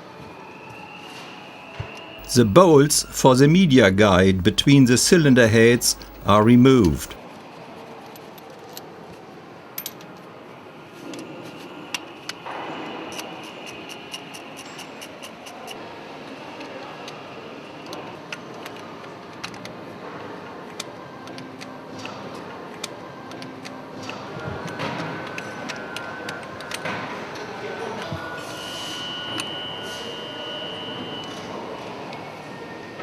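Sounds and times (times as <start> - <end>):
low background hum: 2.2 - 7.2.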